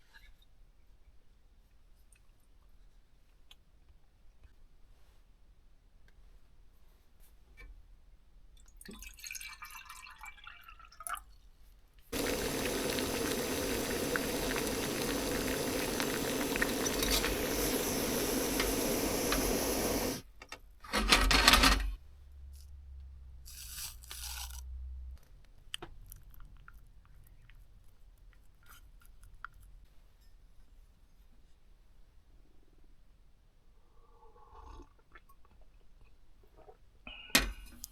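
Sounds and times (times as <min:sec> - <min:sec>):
water pouring: 0:08.8 - 0:11.2, 0:12.2 - 0:20.2.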